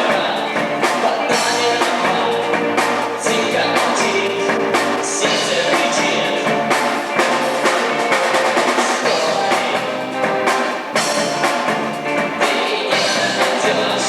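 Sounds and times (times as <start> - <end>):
rock band playing: 0.0 - 14.0.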